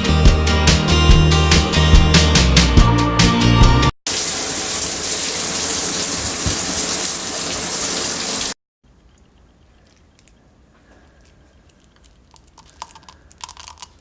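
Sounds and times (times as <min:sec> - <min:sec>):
water running: 0:04.1 - 0:08.6.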